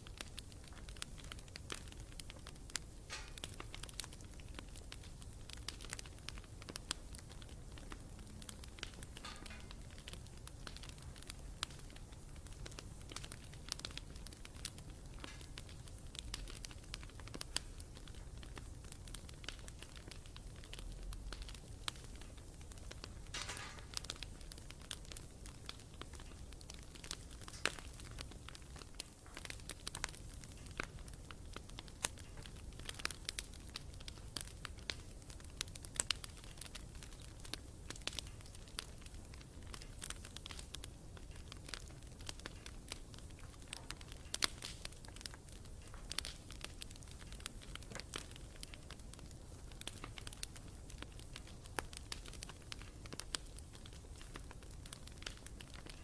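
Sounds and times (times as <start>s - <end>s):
campfire crackling and popping: 0.0s - 56.0s
low rumble of flames: 0.0s - 56.0s.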